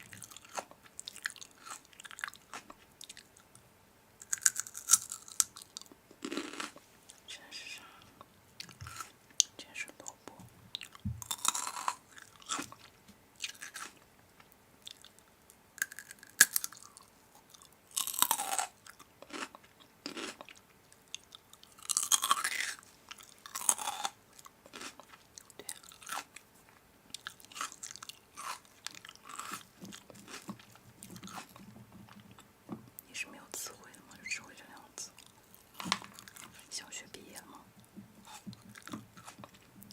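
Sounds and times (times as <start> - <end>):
person chewing crunchy food: 0.0 - 3.5, 4.2 - 7.2, 8.6 - 9.5, 10.8 - 15.2, 15.8 - 26.4, 27.1 - 32.5, 35.2 - 36.6, 38.2 - 39.9.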